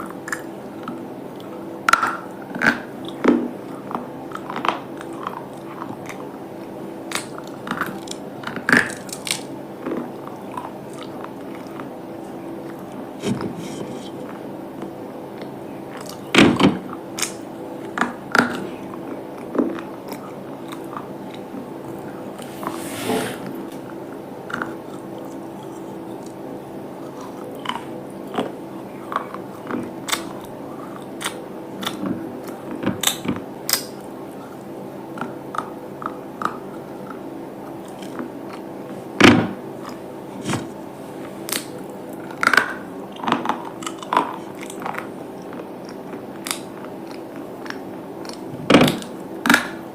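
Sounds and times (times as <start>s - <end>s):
crunchy chewing: 0.0s - 16.3s, 16.9s - 22.5s, 24.5s - 39.0s, 39.8s - 49.8s
steady low hum: 0.0s - 49.9s.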